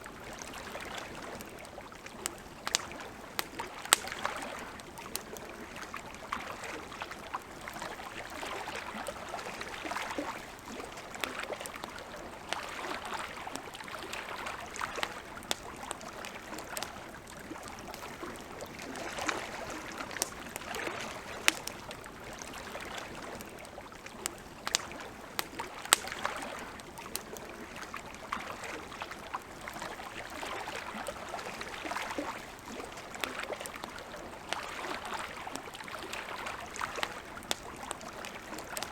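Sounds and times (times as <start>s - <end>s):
lapping water: 0.0s - 38.9s
wood fire crackling and popping: 1.3s - 5.7s, 14.8s - 27.7s.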